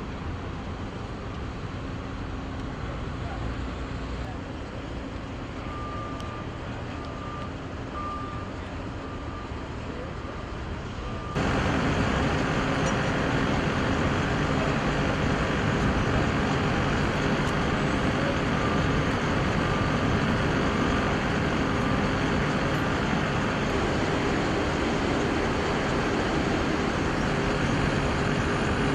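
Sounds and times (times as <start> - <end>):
motor vehicle rumble: 0.0 - 28.9
short beeps: 5.6 - 9.6.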